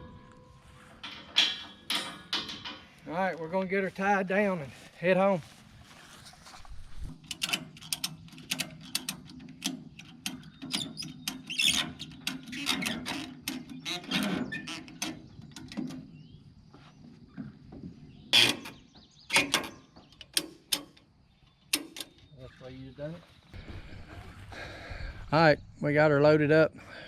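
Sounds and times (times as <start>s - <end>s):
metal clicks and clanks: 1.0s - 3.0s, 7.2s - 16.1s, 18.3s - 21.1s, 21.7s - 22.3s.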